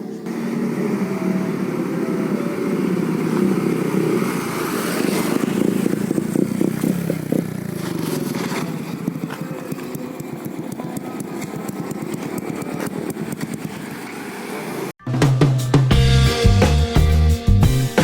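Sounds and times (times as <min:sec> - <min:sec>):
motorcycle exhaust crackling: 0:00.2 - 0:14.3.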